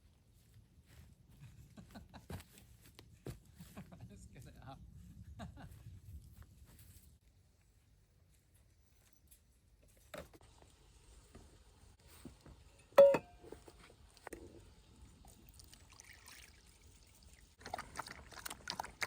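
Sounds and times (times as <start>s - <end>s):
ringing clink: 13.0s - 13.4s.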